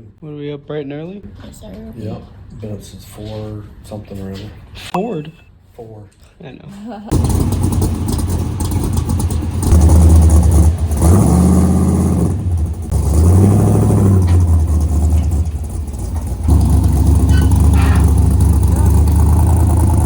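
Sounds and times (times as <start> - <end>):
car engine revving: 7.1 - 20.0.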